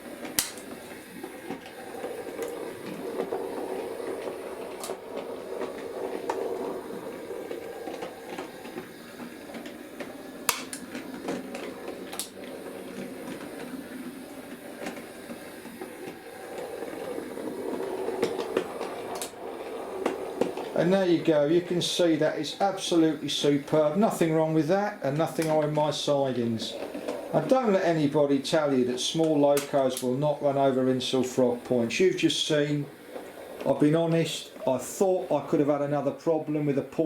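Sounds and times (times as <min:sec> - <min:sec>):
model train motor whirring: 0:00.0 - 0:35.7
wheels clicking over rail joints: 0:00.0 - 0:37.0.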